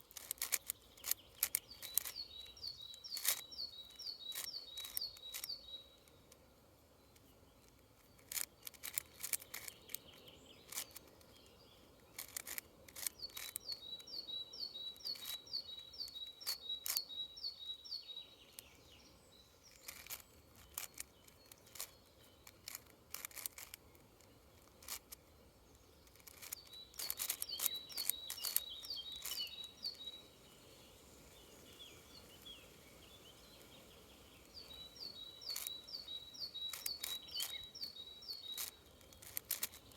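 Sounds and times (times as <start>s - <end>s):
puzzle cube layers clicking: 0.0s - 6.4s, 7.2s - 14.1s, 15.0s - 17.1s, 19.7s - 25.2s, 26.0s - 29.5s, 35.4s - 35.8s, 36.5s - 37.7s, 38.4s - 39.9s
songbird singing high notes: 26.5s - 30.5s.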